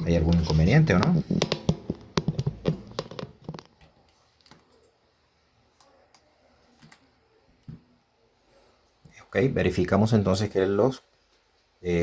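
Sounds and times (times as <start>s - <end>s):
sharp clicks and taps: 0.3s - 3.8s.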